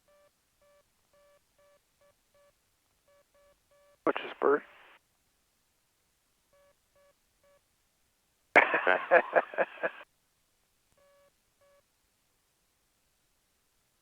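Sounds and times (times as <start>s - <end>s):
voice over radio: 4.1s - 5.0s.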